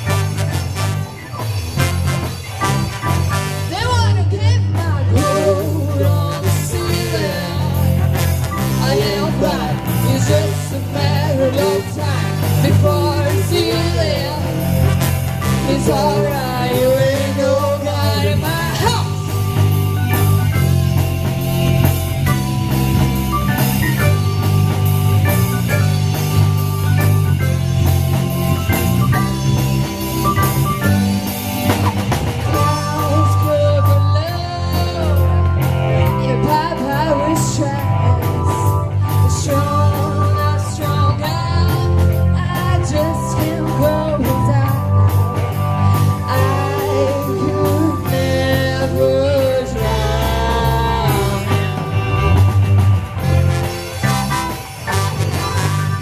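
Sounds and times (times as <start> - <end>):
bass guitar: 0.0 - 56.0
drum kit: 0.0 - 56.0
electric guitar: 0.0 - 56.0
person singing: 3.7 - 8.0, 8.6 - 14.8, 15.4 - 19.3, 32.5 - 45.2, 46.2 - 52.8.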